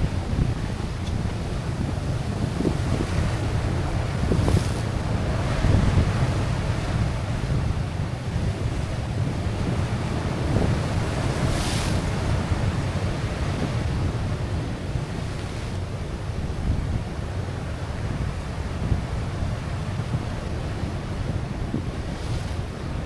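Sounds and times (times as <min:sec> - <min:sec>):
wind buffeting microphone: 0:00.0 - 0:15.3
waves washing on rocky shore: 0:00.1 - 0:16.2.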